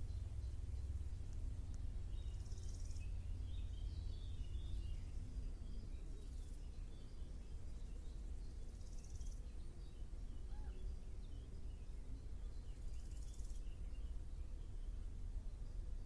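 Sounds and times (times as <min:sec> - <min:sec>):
steady low rumble: 0:00.0 - 0:06.0
small birds twittering: 0:00.0 - 0:16.0.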